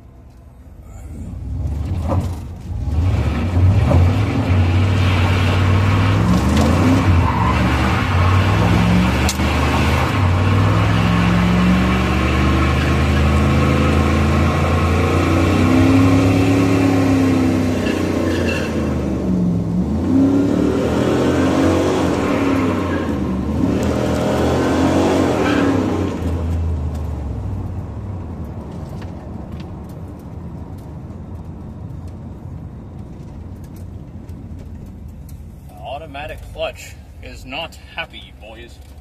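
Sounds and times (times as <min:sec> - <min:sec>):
car engine revving: 0:00.8 - 0:29.0.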